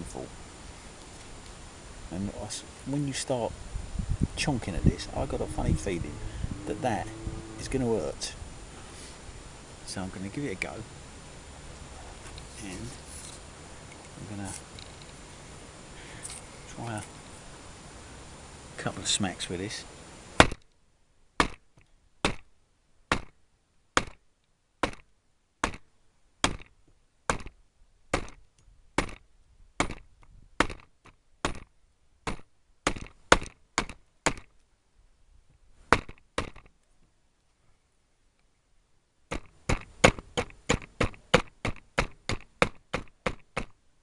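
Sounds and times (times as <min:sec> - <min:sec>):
axe chopping wood: 0:20.4 - 0:20.6, 0:21.4 - 0:21.6, 0:22.2 - 0:22.5, 0:23.1 - 0:23.4, 0:24.0 - 0:24.2, 0:24.8 - 0:25.8, 0:26.4 - 0:28.4, 0:29.0 - 0:29.2, 0:29.8 - 0:31.7, 0:32.3 - 0:34.5, 0:35.9 - 0:36.7, 0:39.3 - 0:43.8.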